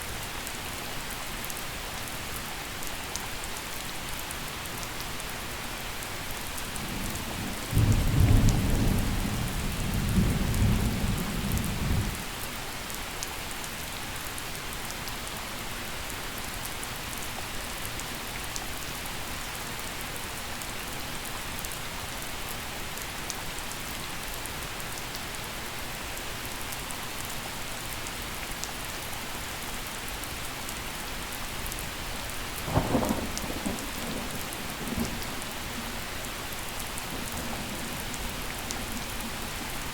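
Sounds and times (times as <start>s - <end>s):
gentle rain falling: 0.0s - 39.9s
thunder rumbling: 32.7s - 35.6s.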